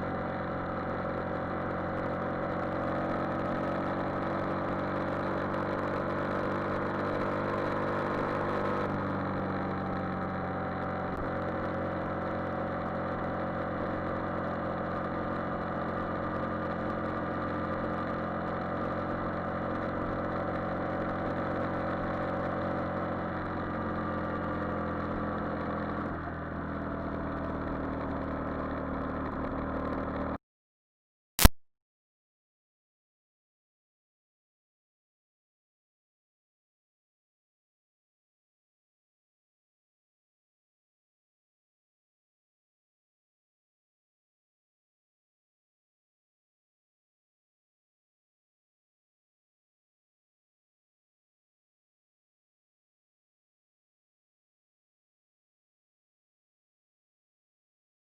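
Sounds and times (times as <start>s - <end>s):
motorcycle engine running: 0.0s - 30.4s.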